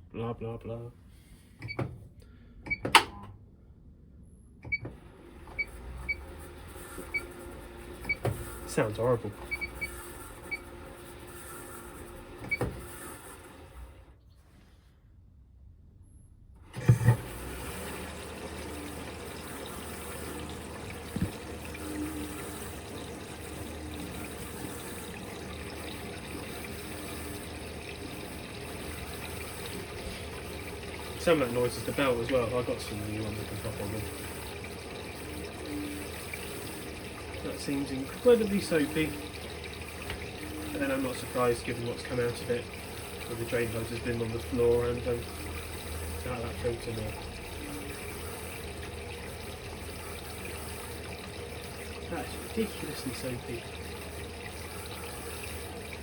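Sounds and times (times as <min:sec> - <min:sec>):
washing machine running: 0:04.6 - 0:14.2, 0:16.6 - 0:56.0
washing machine thump: 0:16.7 - 0:17.4, 0:20.5 - 0:21.6.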